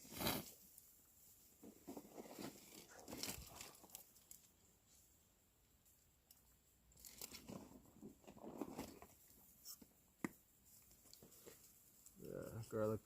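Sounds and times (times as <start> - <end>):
soft rustling: 7.0 - 12.9.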